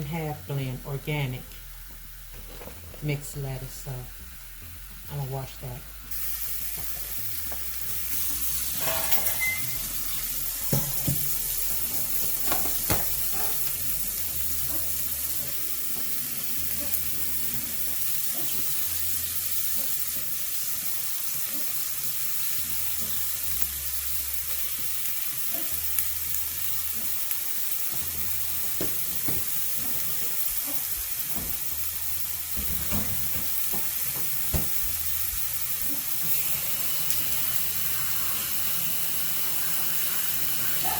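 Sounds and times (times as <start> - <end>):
tap running into sink: 10.6 - 13.2, 32.6 - 34.9.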